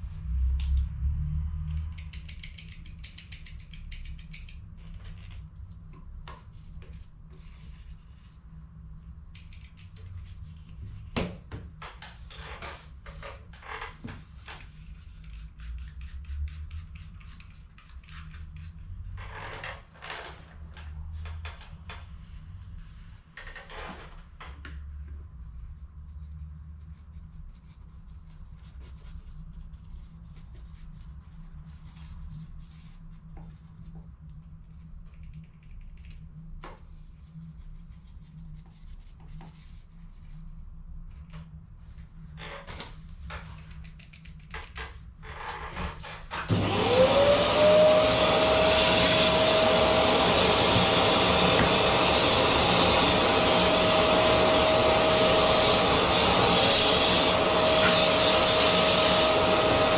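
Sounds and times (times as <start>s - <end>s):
electric motor whining: 46.5s - 59.9s.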